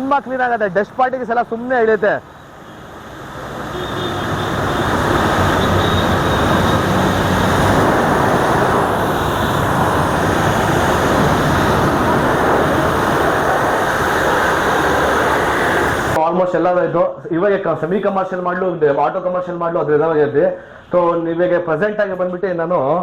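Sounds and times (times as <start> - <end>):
pressure washer spraying water: 2.8 - 16.2.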